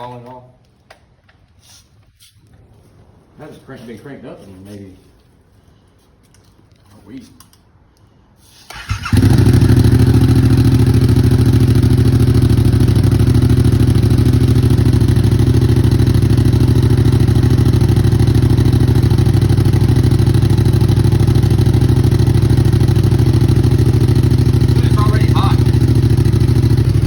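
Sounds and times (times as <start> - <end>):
motorcycle engine idling: 8.7 - 27.0.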